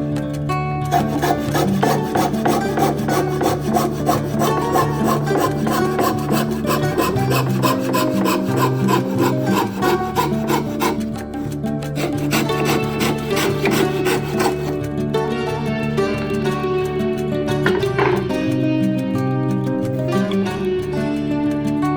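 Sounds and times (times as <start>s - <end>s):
background music: 0.0s - 21.9s
fretsaw cutting wood: 0.8s - 14.9s.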